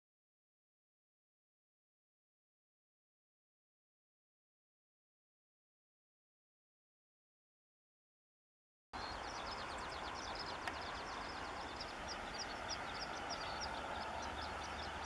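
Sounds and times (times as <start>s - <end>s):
songbird chirping: 9.0s - 15.0s.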